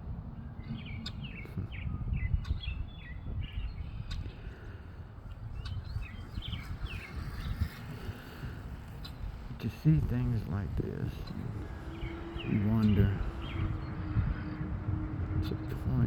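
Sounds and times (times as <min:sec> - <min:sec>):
blackbird chirping: 0:00.4 - 0:08.1, 0:08.9 - 0:16.0
low rumble: 0:10.6 - 0:16.0.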